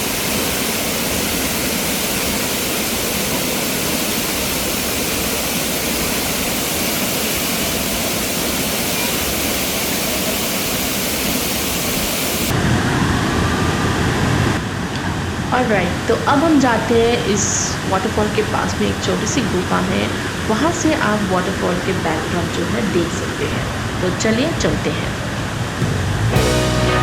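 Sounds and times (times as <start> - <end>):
waterfall rushing: 0.0 - 12.7
low dull rumble: 25.6 - 27.0.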